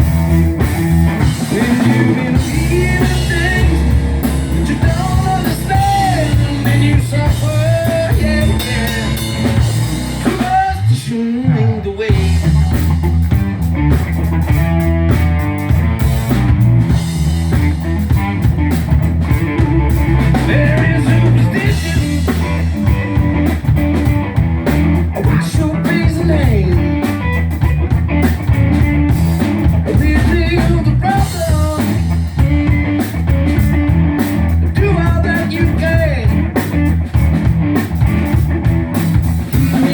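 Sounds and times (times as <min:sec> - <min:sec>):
rock band playing live: 0:00.0 - 0:39.9
person singing: 0:01.3 - 0:12.6, 0:19.6 - 0:23.0, 0:25.2 - 0:27.3, 0:29.9 - 0:33.2, 0:39.5 - 0:39.9.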